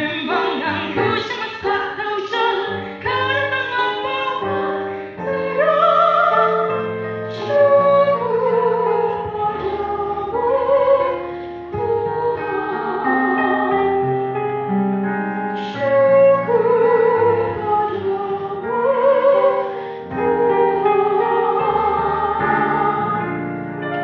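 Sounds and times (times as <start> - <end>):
woman singing operatic pop: 0.0 - 8.3.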